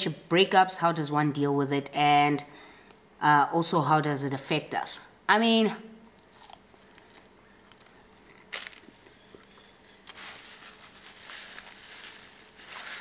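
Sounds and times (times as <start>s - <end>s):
chewing pastry: 6.2s - 10.2s.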